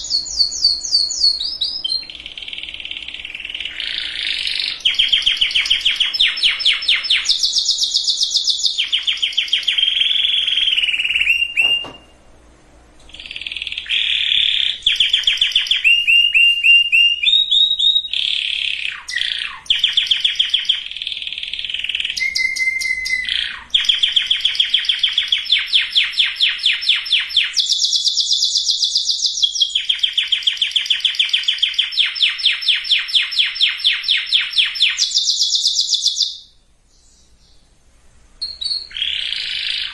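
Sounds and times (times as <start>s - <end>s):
canary singing rolling trills: 0.0s - 12.3s, 13.0s - 37.8s, 38.4s - 39.9s.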